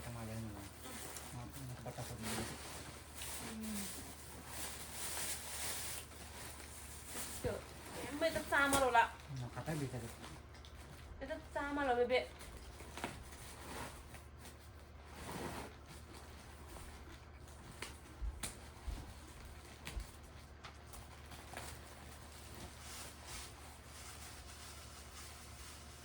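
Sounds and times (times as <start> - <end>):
food packages rustling: 0.1 - 10.5.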